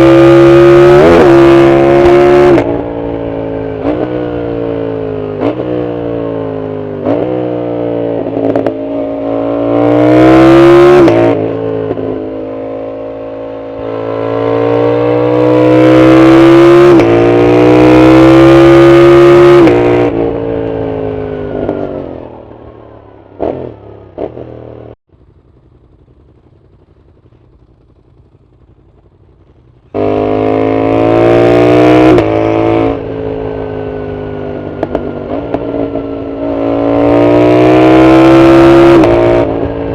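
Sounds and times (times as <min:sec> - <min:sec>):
motorcycle engine accelerating: 0:00.0 - 0:39.9
exhaust crackles: 0:25.1 - 0:31.5.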